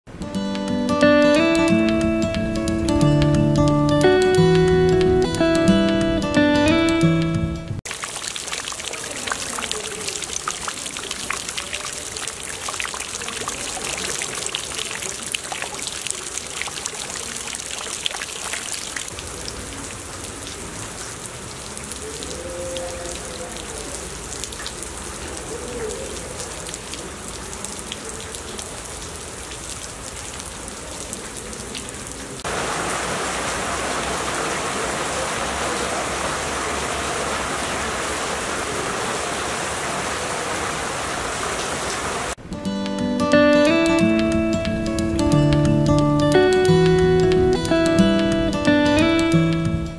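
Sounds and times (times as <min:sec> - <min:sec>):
drops splashing into puddles: 0:07.9 - 0:42.4
hiss of rain: 0:07.9 - 0:42.4.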